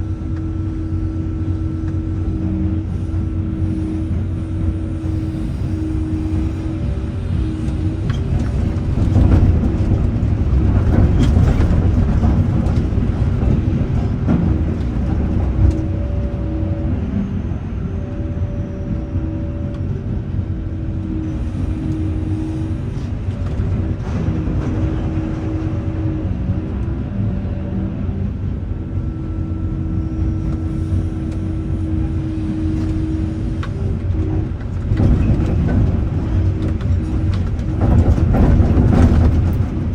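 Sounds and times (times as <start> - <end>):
diesel drone with held tone: 0.0 - 39.9
rocks clattering through crusher: 7.6 - 16.0, 34.3 - 39.9.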